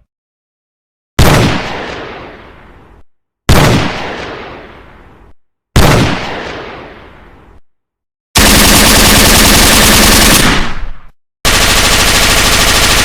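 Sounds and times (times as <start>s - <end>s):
gunshots with echo: 1.2s - 2.8s, 3.5s - 5.0s, 5.8s - 7.2s, 8.4s - 13.0s.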